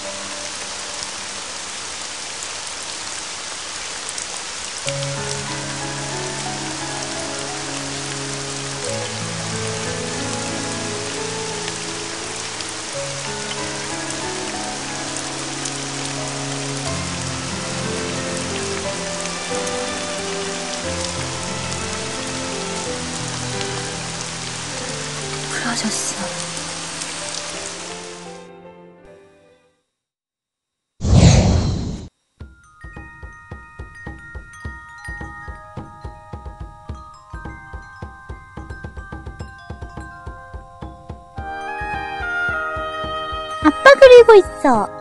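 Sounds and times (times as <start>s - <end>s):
steady rain falling: 0.0s - 28.5s, 32.8s - 44.9s
water drips ticking: 4.1s - 27.9s, 32.9s - 42.6s.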